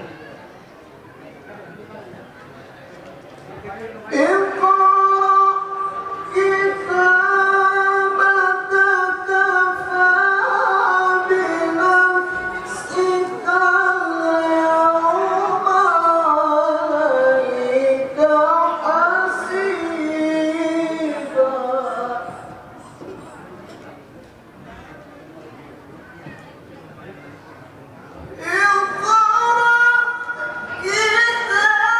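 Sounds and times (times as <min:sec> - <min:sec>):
person reciting melodically: 0:03.7 - 0:22.8, 0:28.2 - 0:31.9.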